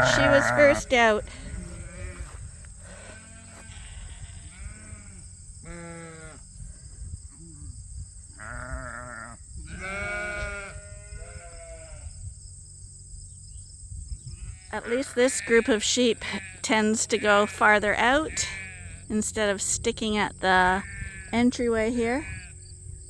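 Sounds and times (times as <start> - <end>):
sheep bleating: 0.0 - 6.4, 8.4 - 12.1, 14.8 - 19.0, 20.6 - 22.5.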